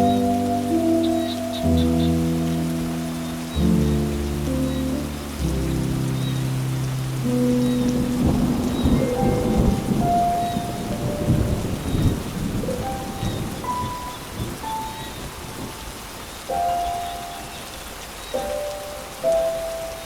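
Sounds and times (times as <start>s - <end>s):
slow soft instrumental notes: 0.0s - 11.9s, 16.5s - 20.0s
thunder rumble: 0.0s - 15.8s
steady rain: 0.0s - 20.0s.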